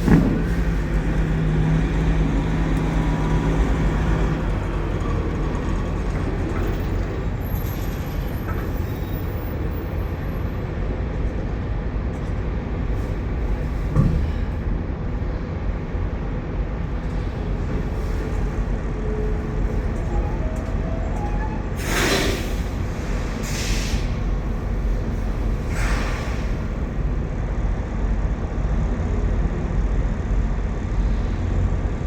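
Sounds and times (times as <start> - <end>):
short knock: 0.0 - 0.9
truck engines idling: 0.0 - 32.0.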